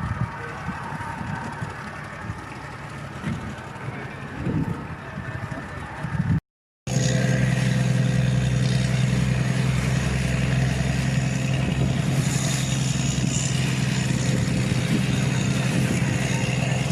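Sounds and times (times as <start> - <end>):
engine running steadily: 0.0 - 16.9.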